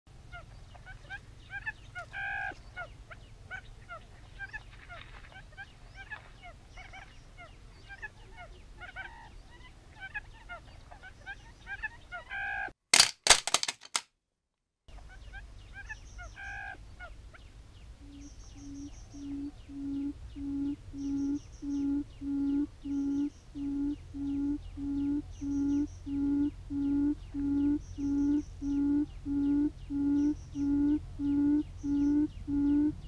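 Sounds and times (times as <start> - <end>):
loud clicks: 13.0 - 14.0
birds chirping: 14.9 - 33.0
bird honking call: 18.0 - 33.0.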